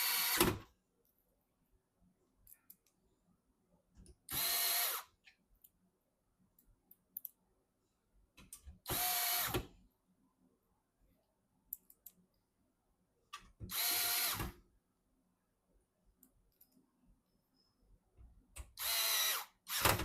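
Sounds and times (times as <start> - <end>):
electric screwdriver driving screws: 0.0 - 0.6, 4.3 - 5.1, 8.9 - 9.6, 13.7 - 14.6, 18.8 - 20.0.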